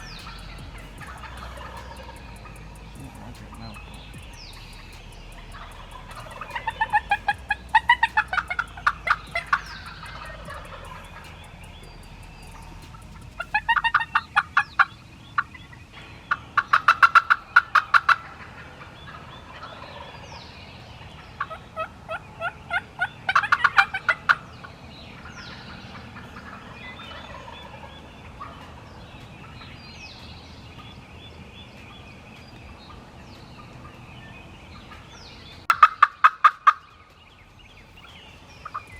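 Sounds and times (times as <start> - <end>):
turkey gobbling: 0.0 - 15.6, 16.3 - 24.5, 25.2 - 29.7, 35.7 - 37.0
small birds chirping: 0.0 - 38.9.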